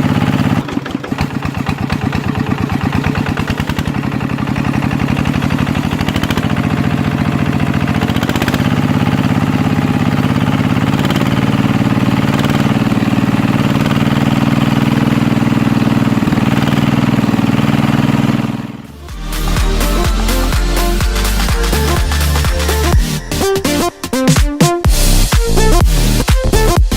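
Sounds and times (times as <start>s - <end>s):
walking tractor engine running: 0.0s - 26.9s.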